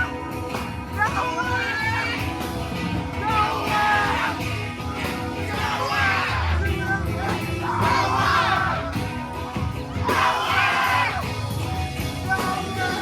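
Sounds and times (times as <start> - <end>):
crowd voices: 0.0 - 13.0
live band playing: 0.0 - 13.0
vocalist shouting or singing: 3.2 - 4.6, 5.4 - 8.9.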